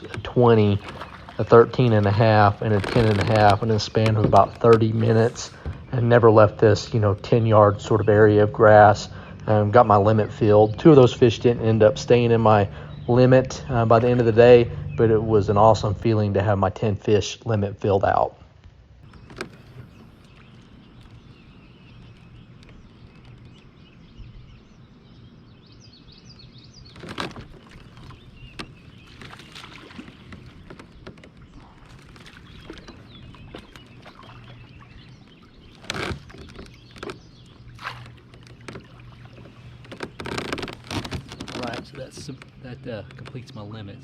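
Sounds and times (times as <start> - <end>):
gear knocking against kayak: 0.0 - 8.1, 19.0 - 24.0, 26.8 - 43.8
faint bird calls: 19.0 - 44.0.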